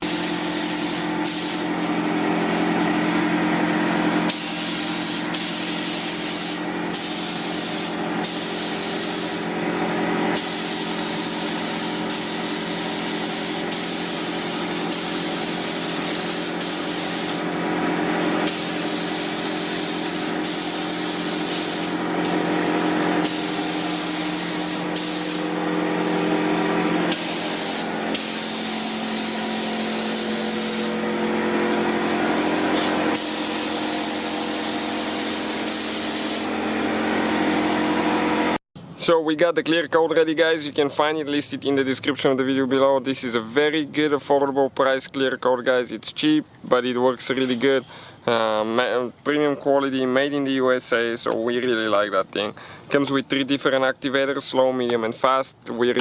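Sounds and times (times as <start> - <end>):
paint spray gun hissing: 0.0 - 2.0, 4.2 - 9.6, 10.3 - 36.8
steady hum: 0.0 - 38.9.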